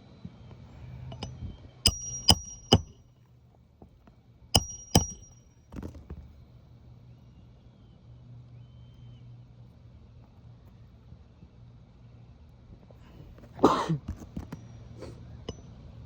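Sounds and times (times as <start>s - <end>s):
hammer striking nails: 1.9s - 3.0s, 4.6s - 5.4s
light hammer taps: 4.6s - 5.4s.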